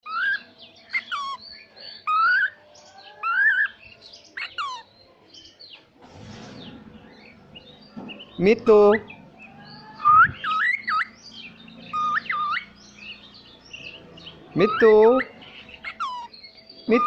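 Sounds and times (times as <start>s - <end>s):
cockatiel whistling: 10.0s - 11.1s, 11.9s - 12.7s.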